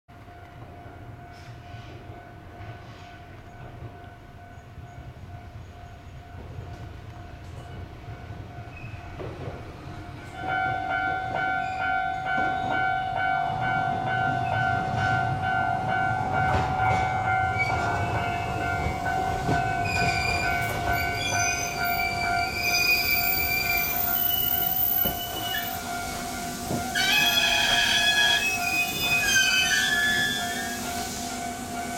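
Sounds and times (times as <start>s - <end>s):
electric train high whine: 0.2s - 31.9s
squealing brakes and wheels: 8.7s - 9.1s, 19.6s - 26.3s, 26.9s - 31.2s.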